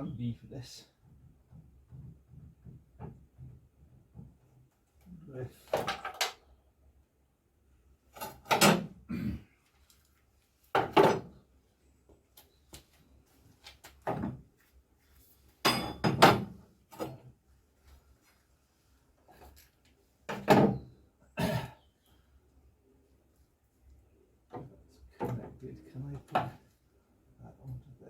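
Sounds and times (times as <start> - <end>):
tools clunking when set down: 15.6 - 17.2.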